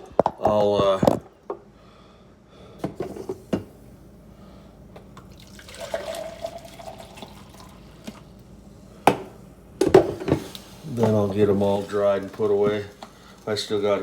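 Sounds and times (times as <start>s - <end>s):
dishes knocking: 9.1s - 10.5s.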